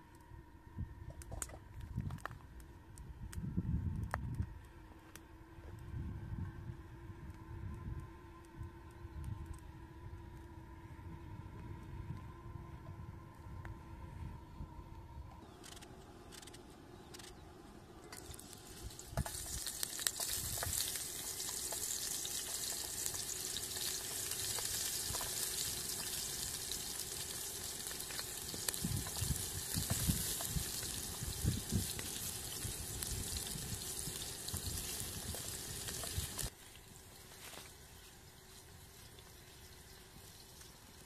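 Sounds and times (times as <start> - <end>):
onion sizzling in hot oil: 18.2 - 37.4.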